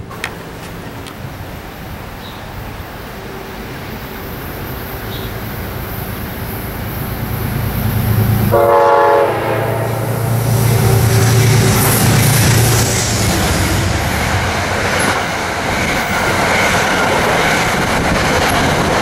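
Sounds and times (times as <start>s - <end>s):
train passing rumble: 0.0s - 19.0s
train horn blast: 7.7s - 13.2s.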